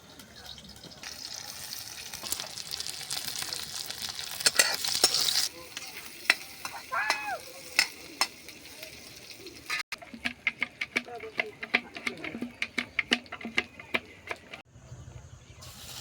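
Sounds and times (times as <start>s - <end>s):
food sizzling in hot oil: 0.0s - 9.9s, 15.6s - 16.0s
utensil scraping pan: 4.4s - 8.4s, 9.7s - 14.6s.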